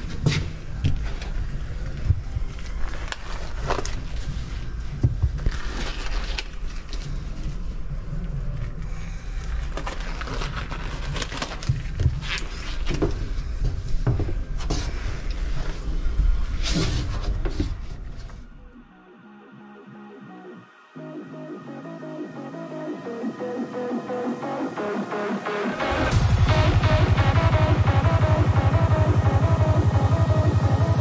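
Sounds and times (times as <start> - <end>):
steady low rumble: 23.1 - 31.0.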